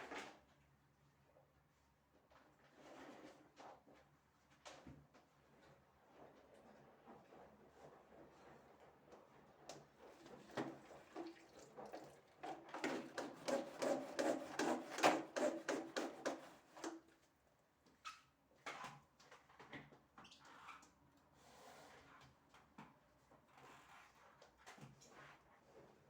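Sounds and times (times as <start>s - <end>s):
hand scrubbing a hard surface: 13.1s - 16.5s.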